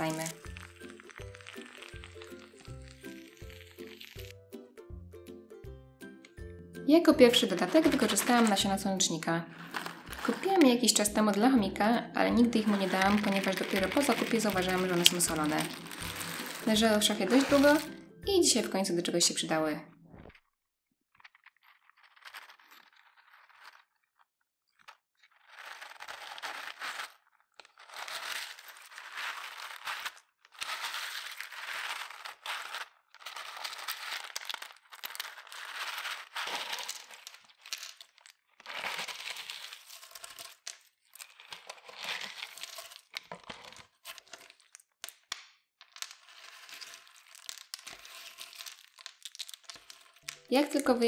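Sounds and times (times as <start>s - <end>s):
seeds crackling in slime: 0.0s - 4.4s, 7.3s - 11.4s, 12.4s - 18.0s, 25.3s - 45.3s, 46.0s - 51.0s.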